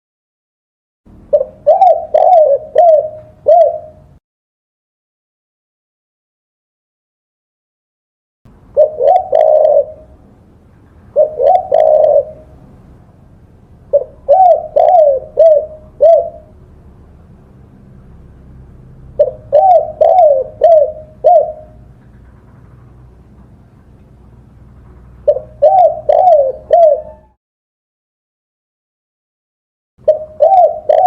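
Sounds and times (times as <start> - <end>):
dove cooing: 1.3 - 4.2, 8.8 - 10.2, 11.1 - 12.7, 13.9 - 16.6, 19.2 - 23.0, 25.0 - 27.4, 30.0 - 31.0.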